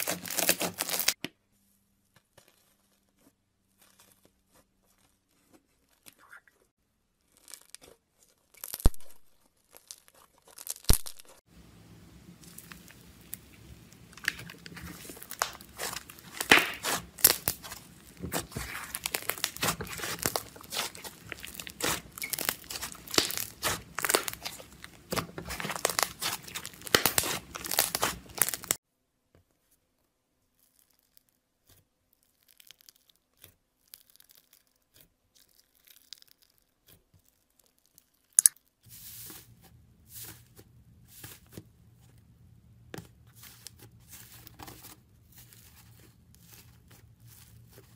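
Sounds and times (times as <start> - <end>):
slime crackling and popping: 0.0 - 1.2, 7.2 - 11.4, 12.1 - 28.8, 30.5 - 38.8
low steady hum: 11.5 - 28.8.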